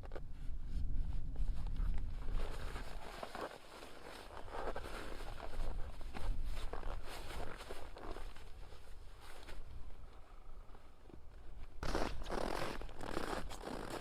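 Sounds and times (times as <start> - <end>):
footsteps crunching in snow: 1.1 - 9.9.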